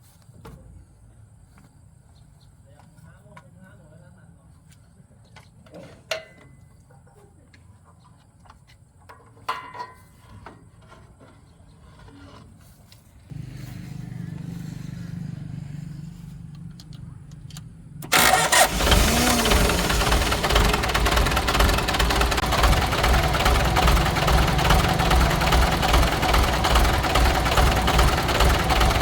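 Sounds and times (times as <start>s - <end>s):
car engine running: 13.3s - 29.0s
car starter cranking: 17.4s - 29.0s.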